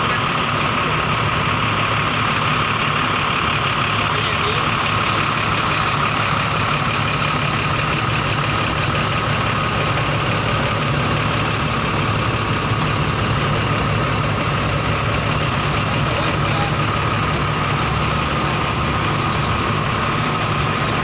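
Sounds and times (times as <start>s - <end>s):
bus diesel engine idling: 0.0s - 21.0s.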